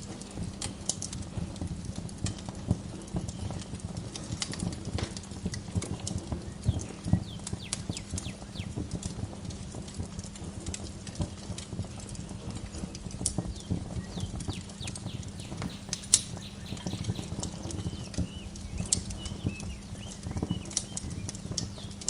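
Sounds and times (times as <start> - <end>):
wood fire crackling: 0.0 - 22.0
faint birds chirping: 5.2 - 8.9, 12.3 - 22.0.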